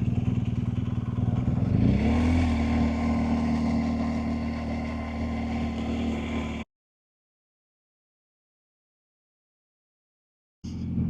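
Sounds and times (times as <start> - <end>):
motorcycle engine running: 0.0 - 6.6, 10.7 - 11.0.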